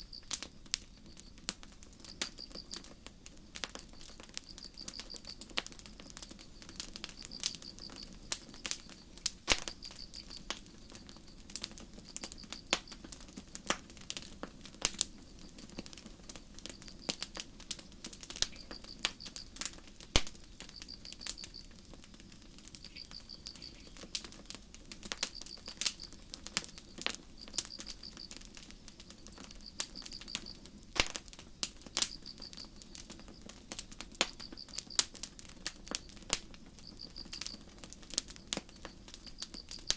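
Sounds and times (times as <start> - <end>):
cricket chirping: 0.0 - 13.4, 14.9 - 39.9
campfire crackling: 0.0 - 39.9
low steady hiss: 0.0 - 39.9
wood pops: 9.5 - 10.0, 31.0 - 31.3.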